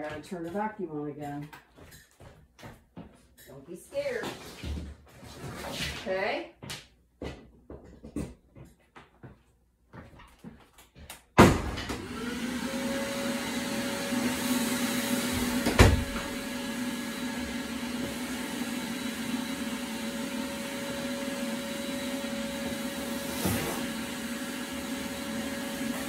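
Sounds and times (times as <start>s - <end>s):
vacuum cleaner motor whine: 11.8s - 26.0s.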